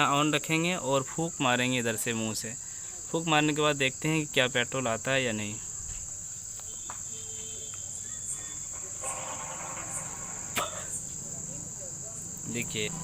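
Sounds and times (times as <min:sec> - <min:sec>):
cricket trill: 0:00.0 - 0:13.0.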